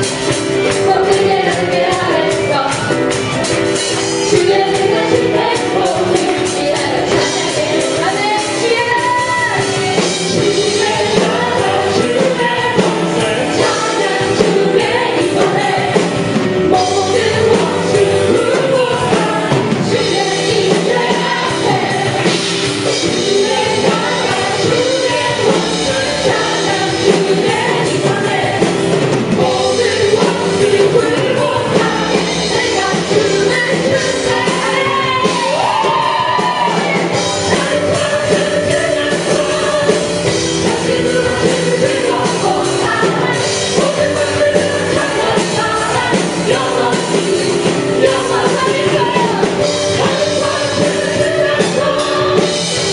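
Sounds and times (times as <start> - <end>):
congregation singing: 0.0 - 52.9
drums: 0.0 - 52.9
worship band playing: 0.0 - 52.9.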